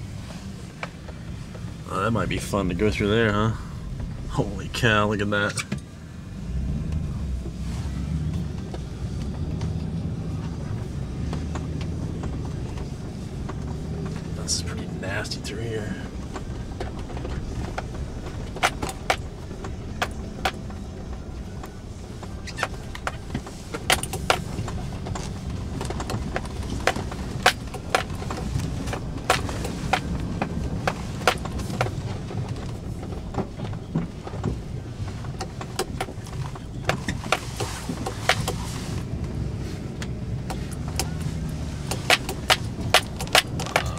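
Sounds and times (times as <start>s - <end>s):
car engine and road rumble: 0.0s - 43.9s
sharp knocks and clicks: 16.2s - 20.8s, 21.6s - 38.6s, 40.0s - 43.9s.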